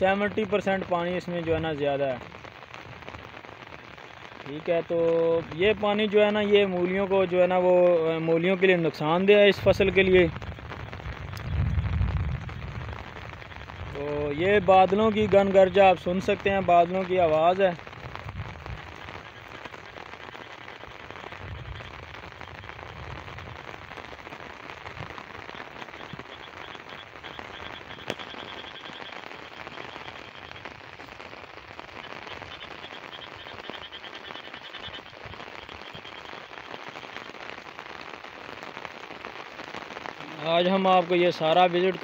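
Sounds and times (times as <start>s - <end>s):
steady rain falling: 0.0s - 42.0s
distant thunder rumble: 9.4s - 28.8s
faint pulsed high chirping: 25.6s - 31.2s.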